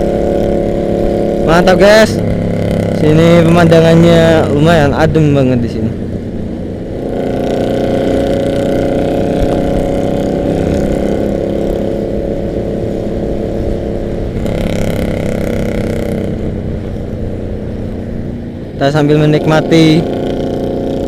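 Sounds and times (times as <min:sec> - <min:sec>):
motorcycle engines running: 0:00.0 - 0:21.0.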